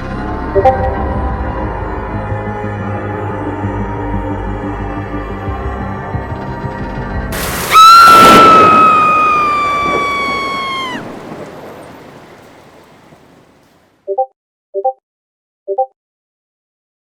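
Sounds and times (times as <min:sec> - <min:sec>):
background music: 0:00.0 - 0:07.6
thunder crash sound effect: 0:07.4 - 0:13.7.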